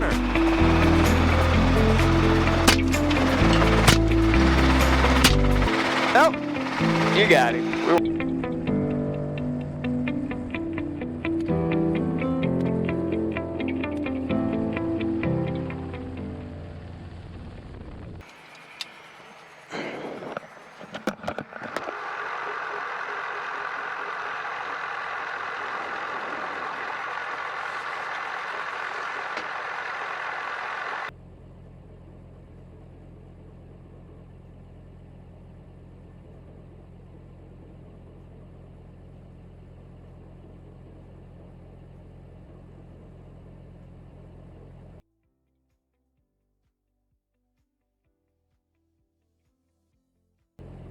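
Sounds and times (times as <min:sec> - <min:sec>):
helicopter cabin noise: 0:00.0 - 0:08.0, 0:18.2 - 0:31.1
sharp bangs: 0:00.0 - 0:08.0
low hum: 0:00.0 - 0:11.4, 0:14.8 - 0:45.0.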